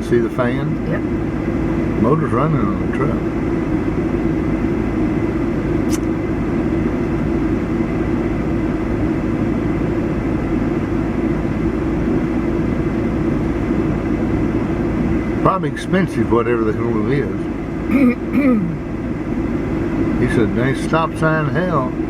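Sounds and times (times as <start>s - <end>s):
vehicle engine idling: 0.0s - 22.0s
brief click: 5.9s - 6.1s.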